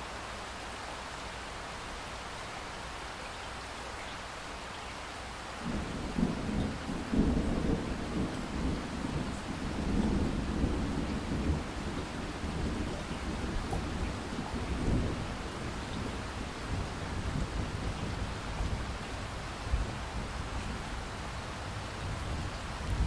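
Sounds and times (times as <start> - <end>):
steady rain falling: 0.0 - 23.0
low rumble of thunder: 5.6 - 23.0.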